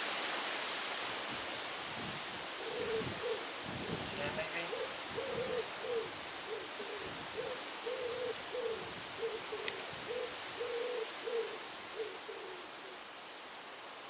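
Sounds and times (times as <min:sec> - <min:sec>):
pigeon cooing: 0:02.6 - 0:13.0.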